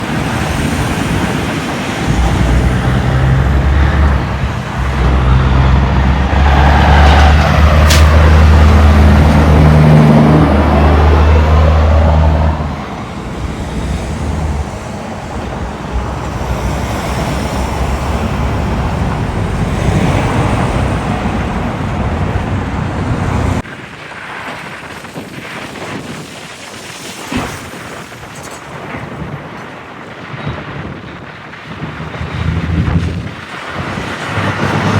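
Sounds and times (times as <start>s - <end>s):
truck engine passing: 0.0s - 23.6s
road traffic: 0.0s - 34.9s.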